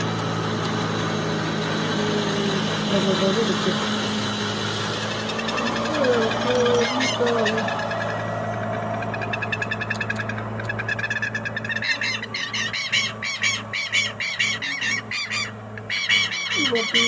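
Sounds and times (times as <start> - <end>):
birds making short high calls: 4.9 - 17.0.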